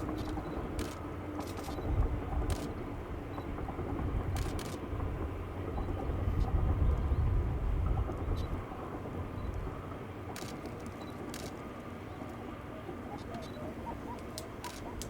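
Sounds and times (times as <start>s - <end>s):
diesel locomotive rumbling past: 0.0s - 15.0s
sharp paired clicks: 14.2s - 15.0s.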